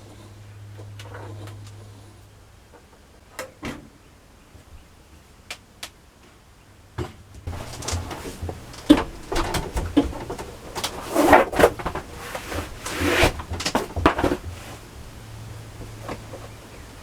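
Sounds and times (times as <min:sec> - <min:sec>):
clatter of things being handled: 0:07.0 - 0:15.0
low steady hum: 0:07.5 - 0:17.0.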